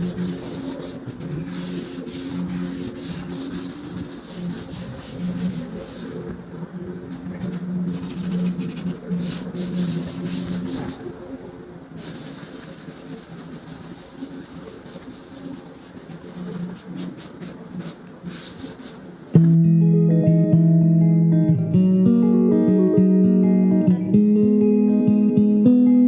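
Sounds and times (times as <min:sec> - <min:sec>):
drywall sanding strokes: 0:00.0 - 0:06.3, 0:07.3 - 0:11.0, 0:12.0 - 0:19.2
steady low hum: 0:00.0 - 0:24.6.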